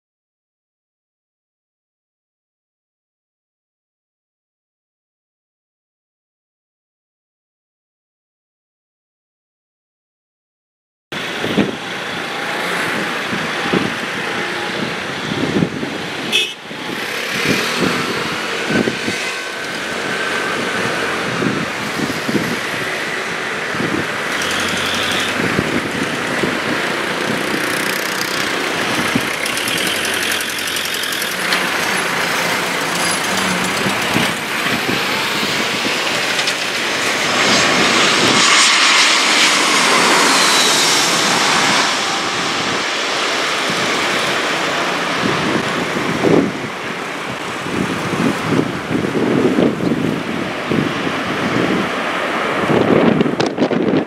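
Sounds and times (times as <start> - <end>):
jet engines running: 11.1 - 54.0.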